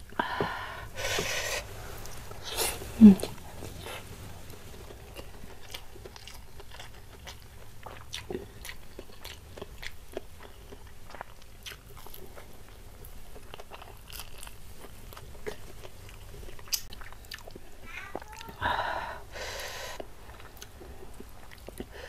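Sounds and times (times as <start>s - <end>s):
crunching fried food: 3.8s - 18.6s.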